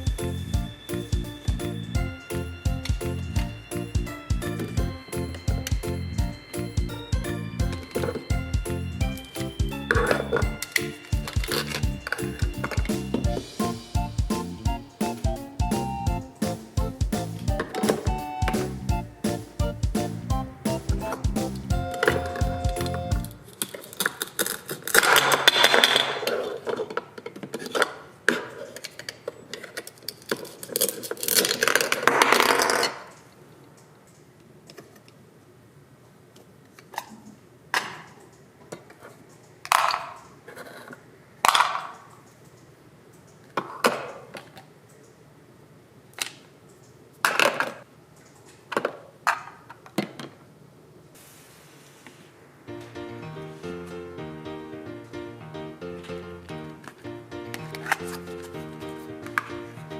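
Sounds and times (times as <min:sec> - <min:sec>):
plastic toys rustling and clattering: 0:09.9 - 0:13.2, 0:22.2 - 0:33.4, 0:36.7 - 0:44.7.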